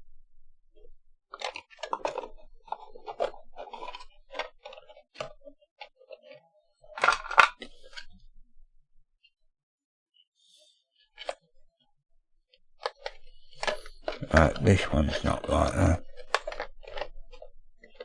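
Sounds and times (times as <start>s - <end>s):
plastic toy parts clicking and rattling: 1.3s - 8.1s, 12.8s - 18.0s.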